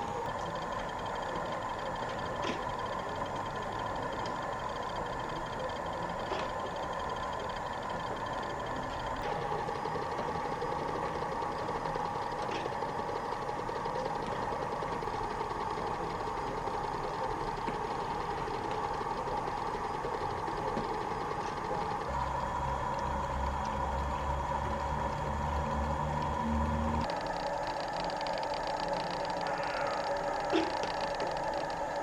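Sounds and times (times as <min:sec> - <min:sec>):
steady mechanical hum: 0:00.0 - 0:32.0
low engine rumble: 0:20.0 - 0:32.0.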